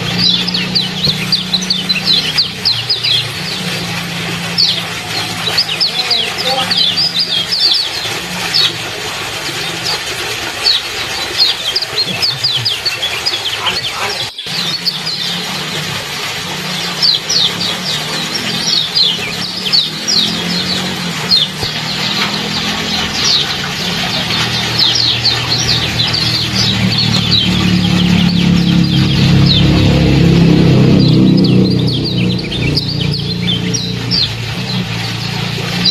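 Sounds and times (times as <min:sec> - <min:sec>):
small bird chirping: 0:00.0 - 0:08.8
water trickling: 0:00.0 - 0:35.9
low hum: 0:13.9 - 0:35.9.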